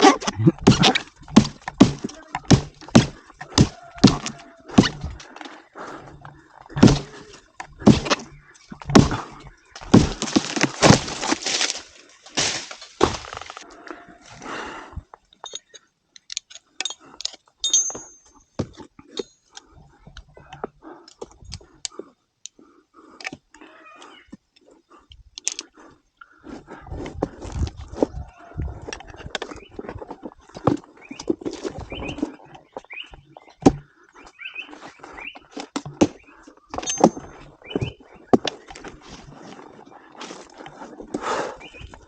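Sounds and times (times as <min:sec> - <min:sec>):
wood cracking and breaking: 0:00.0 - 0:05.3, 0:06.7 - 0:13.6.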